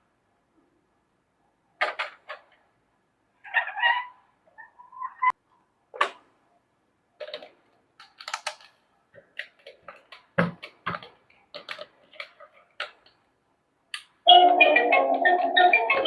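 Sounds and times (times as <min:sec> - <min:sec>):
plastic toy pieces clicking: 0:07.2 - 0:08.8, 0:11.0 - 0:13.2.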